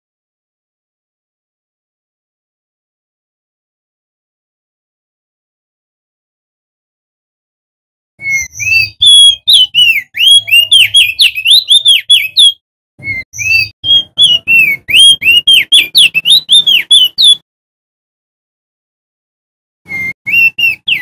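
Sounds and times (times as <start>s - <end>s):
bird singing whistled notes: 8.2s - 17.4s, 19.9s - 21.0s.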